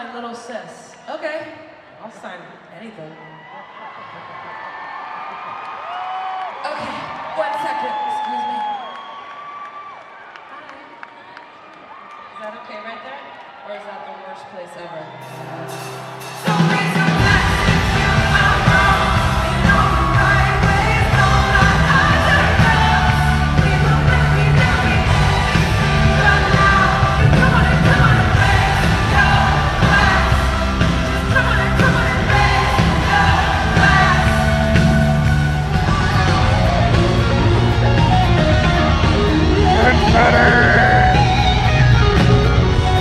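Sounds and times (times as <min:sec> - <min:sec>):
crowd yelling along: 0:03.2 - 0:41.8
live pop-rock band: 0:15.2 - 0:43.0
lead vocalist singing: 0:16.4 - 0:36.8, 0:39.7 - 0:41.3.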